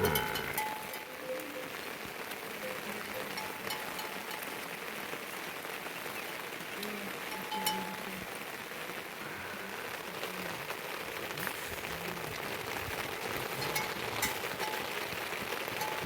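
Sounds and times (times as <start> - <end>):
faint low voices: 0.0 - 16.0
steady rain hissing: 0.0 - 16.0
sharp drip ticks: 11.0 - 16.0.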